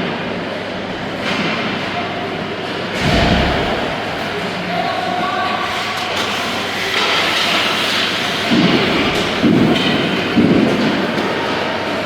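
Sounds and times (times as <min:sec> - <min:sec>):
team game noise in hall: 0:00.0 - 0:12.0
low bursts: 0:03.0 - 0:04.6.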